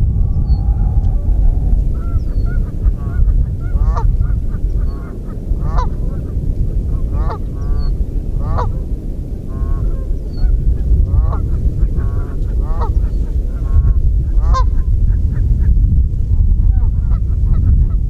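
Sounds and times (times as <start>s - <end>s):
steady low rumble: 0.0s - 6.0s.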